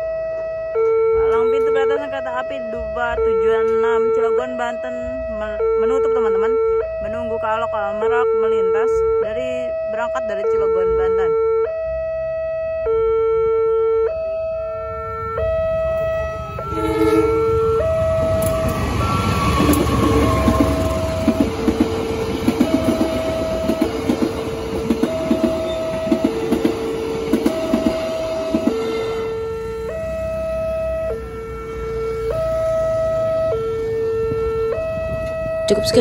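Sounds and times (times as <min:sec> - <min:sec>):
level crossing alarm two tones: 0:00.0 - 0:36.0
diesel train rumbling past: 0:14.4 - 0:36.0
train horn: 0:16.4 - 0:30.0
wheels clacking over rail joints: 0:18.1 - 0:28.8.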